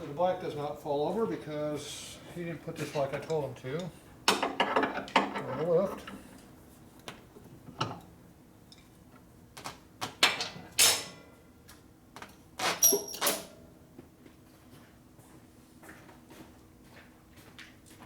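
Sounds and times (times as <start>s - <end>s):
hand tools and metal parts clattering: 2.7s - 6.5s.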